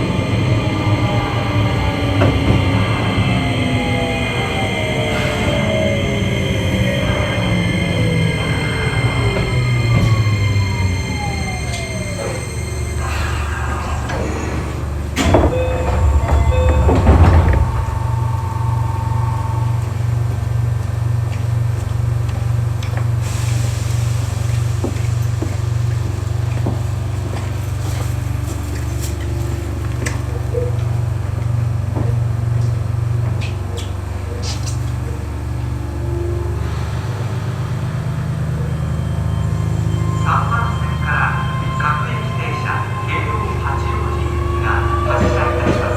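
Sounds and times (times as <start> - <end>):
pulsing train equipment hum: 0.0 - 45.9
train doors sliding shut: 0.4 - 20.2.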